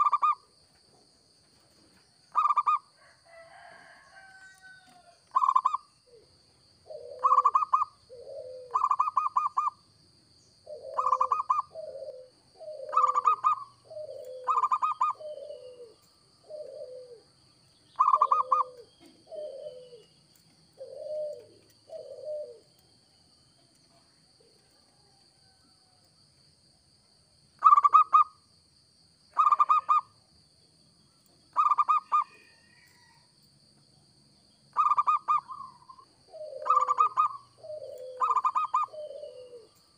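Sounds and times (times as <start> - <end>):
dove cooing: 0.0 - 0.4, 2.3 - 9.8, 10.6 - 22.8, 27.6 - 28.3, 29.3 - 30.1, 31.5 - 33.1, 34.7 - 39.9.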